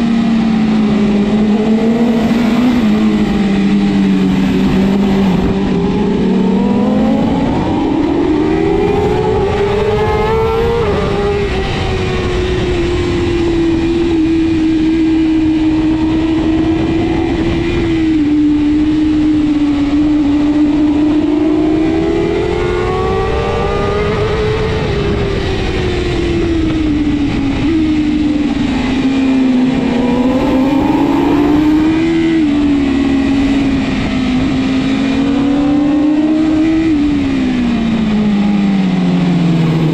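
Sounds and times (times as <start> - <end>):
motorcycle engine racing: 0.0 - 39.9
wind noise rushing: 0.8 - 39.9.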